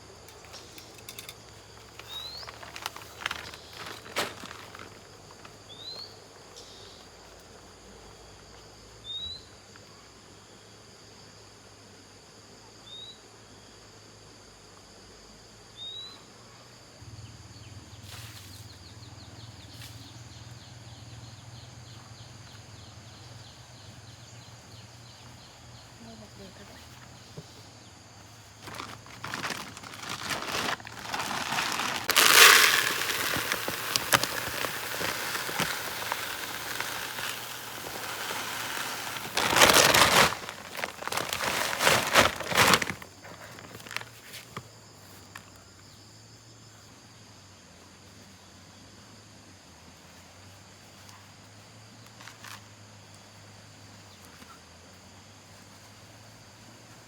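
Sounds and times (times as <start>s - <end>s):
rustling and crackling: 0.0s - 6.2s, 28.4s - 45.5s.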